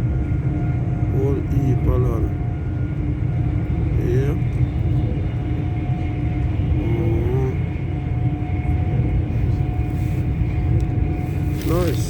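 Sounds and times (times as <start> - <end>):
train rumbling at speed: 0.0 - 12.0.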